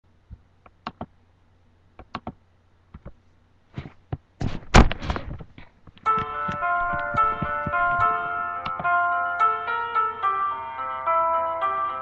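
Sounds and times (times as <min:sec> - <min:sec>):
sharp clicks and taps: 0:00.3 - 0:01.1, 0:02.0 - 0:03.2, 0:05.6 - 0:08.9
bumping and rustling: 0:03.0 - 0:08.2
heavy thump: 0:03.8 - 0:05.5.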